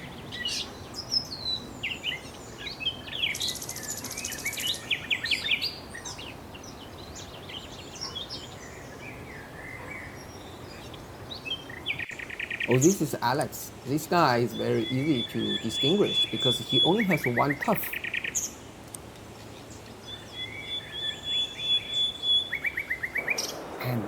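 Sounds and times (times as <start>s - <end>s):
high buzzy bird trill: 0.0s - 18.8s
small birds chirping: 0.0s - 24.0s
steady background hiss: 0.0s - 24.0s.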